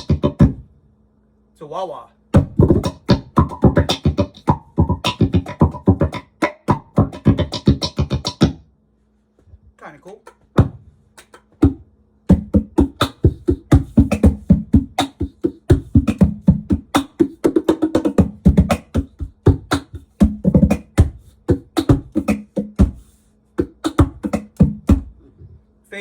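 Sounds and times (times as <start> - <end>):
faint steady hum: 0.0 - 26.0
cajon struck by hand with ringing effect: 2.4 - 8.6, 11.6 - 23.0, 23.6 - 25.1.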